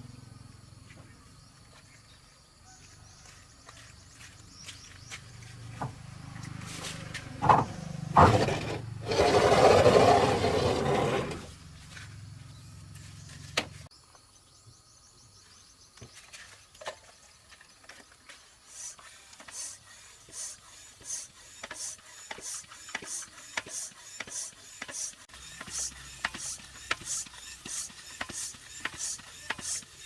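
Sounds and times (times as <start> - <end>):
hand scraping strokes on surface: 8.2 - 12.1, 18.3 - 30.0.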